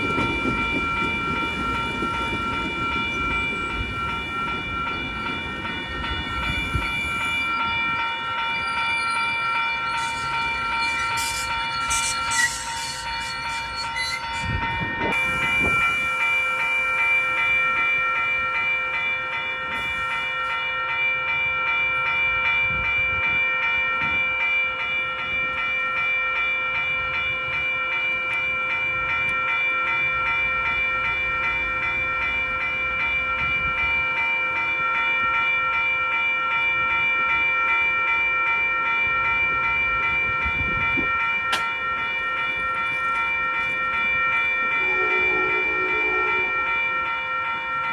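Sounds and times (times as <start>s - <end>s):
steady high-pitched tones: 0.0s - 19.0s, 42.2s - 47.9s
train rumbling: 0.0s - 20.3s, 39.2s - 47.9s.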